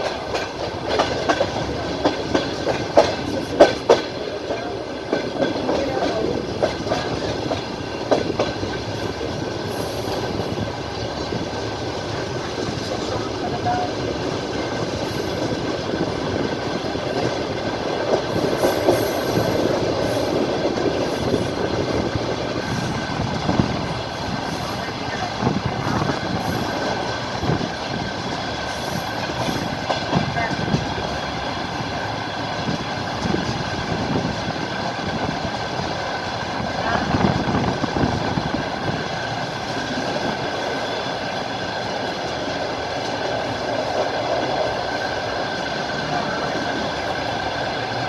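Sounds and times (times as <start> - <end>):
train running rumble: 0.0 - 48.0
train wheels clickety-clack: 0.0 - 48.0.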